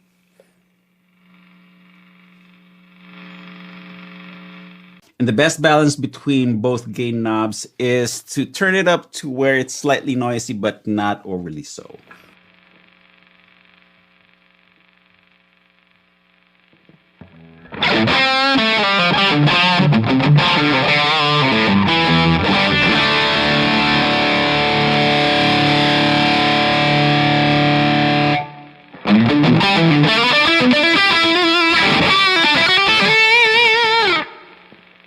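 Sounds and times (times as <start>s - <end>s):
high gain amp noise: 0.0s - 35.0s
distorted electric guitar: 16.7s - 35.0s.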